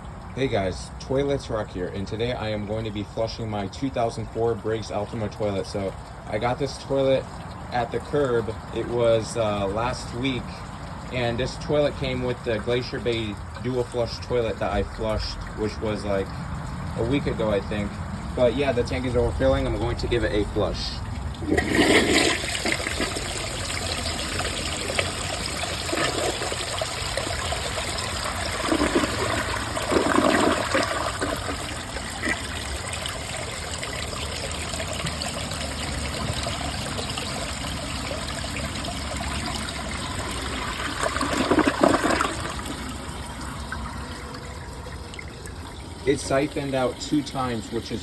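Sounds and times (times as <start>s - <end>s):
toilet flushing: 0.0s - 48.0s
toilet bowl siphoning: 0.9s - 48.0s.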